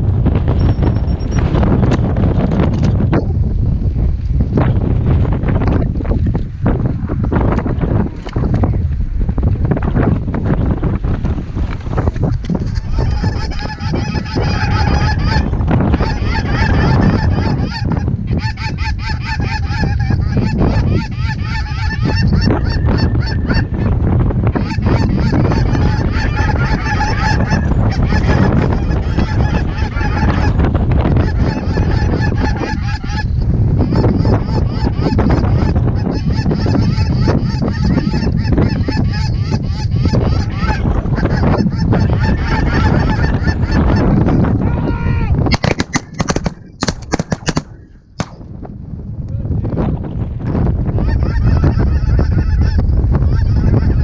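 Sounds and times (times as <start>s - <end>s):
wind buffeting microphone: 0.0s - 54.0s
flock of geese honking: 12.6s - 23.9s, 24.5s - 44.4s, 51.0s - 54.0s.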